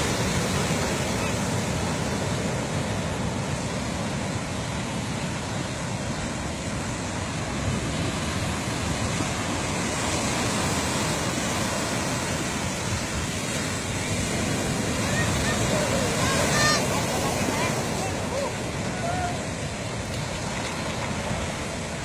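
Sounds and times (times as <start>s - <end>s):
surf breaking on beach: 0.0s - 22.0s.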